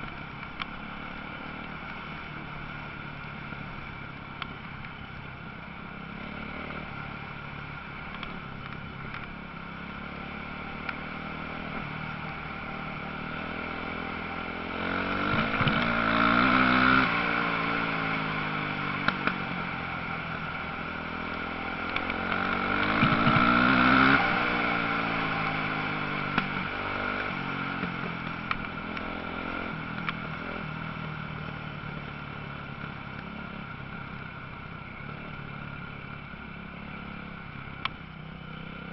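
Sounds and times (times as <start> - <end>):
distant motorcycles droning: 0.0 - 38.9
motorcycle engines revving: 0.0 - 38.9.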